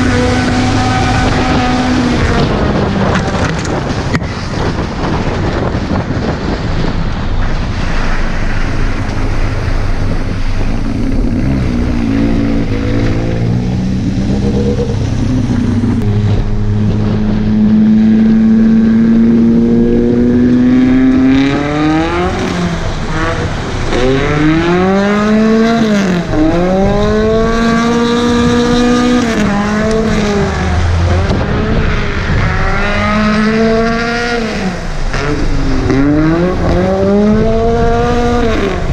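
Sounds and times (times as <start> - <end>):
car engine revving hard: 0.0 - 4.0, 7.7 - 38.9
tyres and wind rushing: 0.0 - 38.9.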